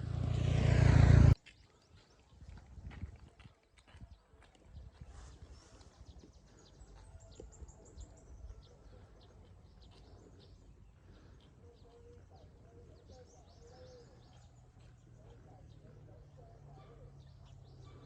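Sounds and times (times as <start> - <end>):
faint bird chirps: 5.0 - 18.0.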